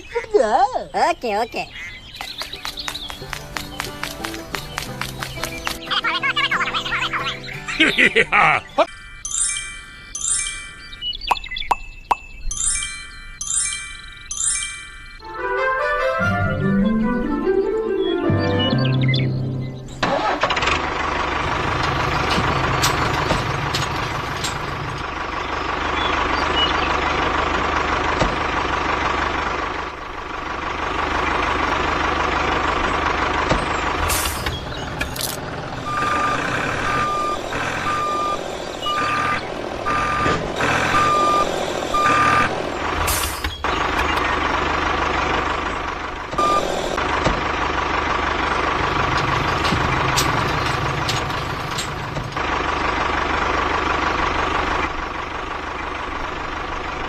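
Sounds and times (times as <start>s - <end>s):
vehicle engine running: 0.0s - 8.9s, 16.1s - 57.0s
reversing alarm beeping: 8.7s - 15.3s, 35.8s - 43.7s, 46.4s - 47.0s.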